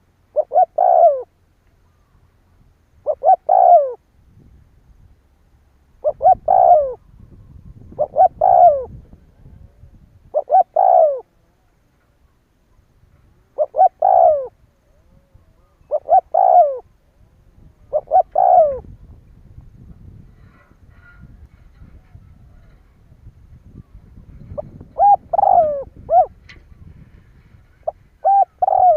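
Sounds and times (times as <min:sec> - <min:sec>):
dove cooing: 0:00.0 - 0:02.1, 0:03.0 - 0:04.0, 0:06.0 - 0:07.1, 0:07.7 - 0:11.8, 0:13.4 - 0:19.2, 0:23.6 - 0:26.5, 0:27.6 - 0:28.9.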